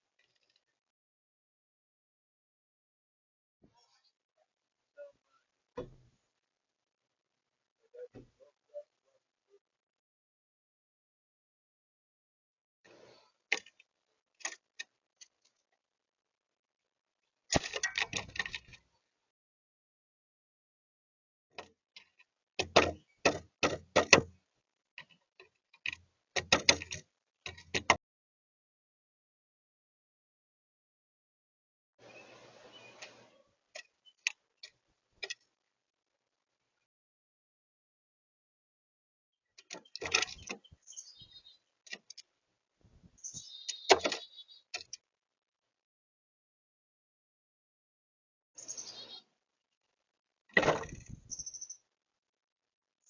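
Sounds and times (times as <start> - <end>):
short high bird chirps: 48.6 - 49.2, 51.3 - 51.8.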